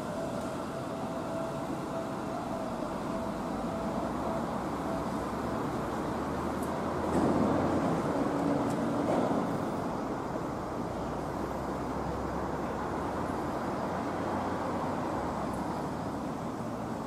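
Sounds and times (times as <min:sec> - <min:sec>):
electric train wheels running: 0:00.0 - 0:17.0.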